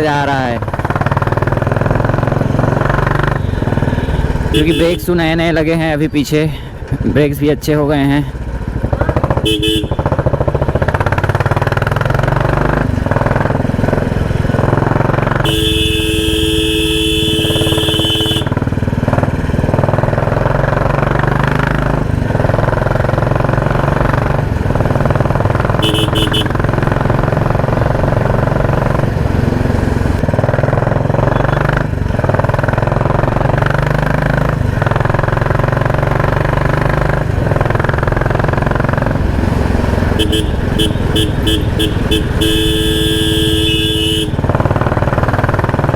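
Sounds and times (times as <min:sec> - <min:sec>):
motorcycle engine loud exhaust: 0:00.0 - 0:45.9
vehicle horn: 0:03.2 - 0:05.2, 0:09.2 - 0:10.4, 0:15.3 - 0:18.7, 0:25.5 - 0:28.9, 0:40.1 - 0:44.8.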